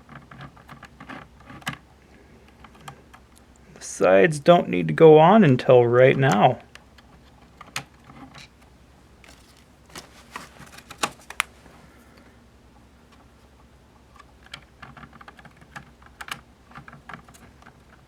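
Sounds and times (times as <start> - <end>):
plastic panels clicking and tapping: 0.0 - 1.9, 6.3 - 8.7, 9.3 - 11.5, 14.1 - 18.0.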